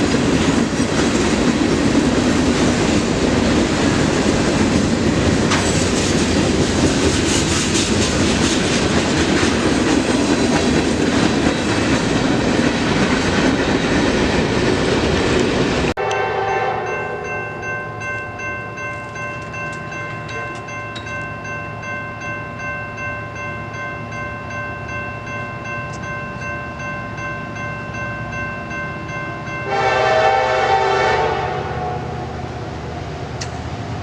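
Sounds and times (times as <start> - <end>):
train wheels on rails: 0.0 - 34.0
steady chord of tones: 16.0 - 33.0.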